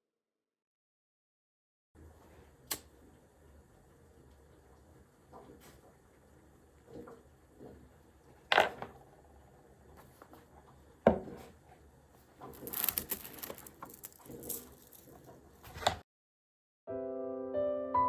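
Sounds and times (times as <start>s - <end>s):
rustling: 12.2s - 16.0s.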